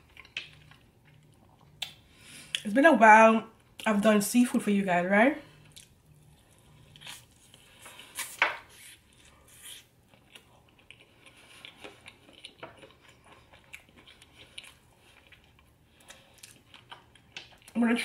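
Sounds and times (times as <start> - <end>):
person chewing: 0.0 - 2.6, 5.6 - 17.7.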